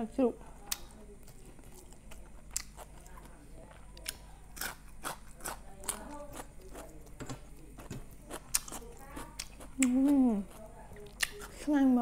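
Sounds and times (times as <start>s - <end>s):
crisp cucumber crunching: 0.7s - 11.8s.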